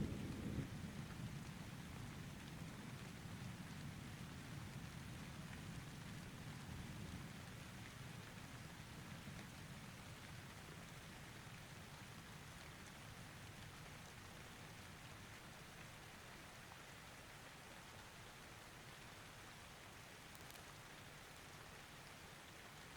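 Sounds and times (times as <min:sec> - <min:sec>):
distant thunder rumble: 0:00.0 - 0:02.6
faint steady rain: 0:00.0 - 0:22.9.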